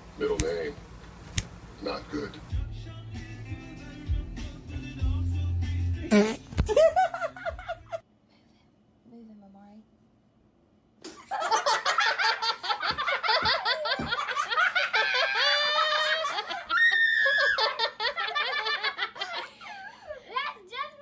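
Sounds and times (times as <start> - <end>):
person laughing heartily: 6.2 - 8.0, 11.1 - 20.3.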